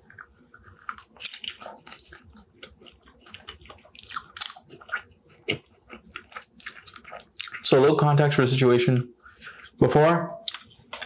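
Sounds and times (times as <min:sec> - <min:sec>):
person chewing food: 0:00.0 - 0:07.9, 0:10.4 - 0:11.0.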